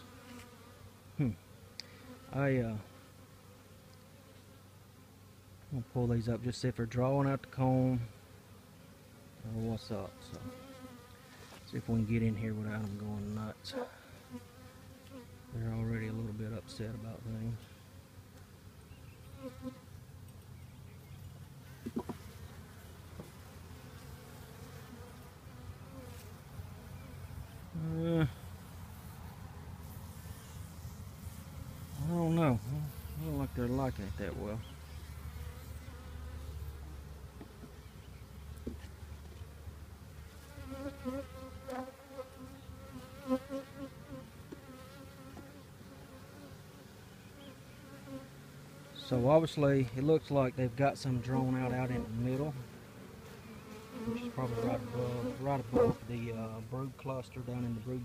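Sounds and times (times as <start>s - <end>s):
single bee buzzing close by: 0.0s - 5.3s, 10.0s - 11.6s, 13.6s - 15.6s, 17.6s - 19.9s, 21.0s - 33.9s, 34.5s - 39.0s, 40.2s - 49.1s, 51.4s - 56.2s
bee colony buzzing: 0.0s - 58.0s.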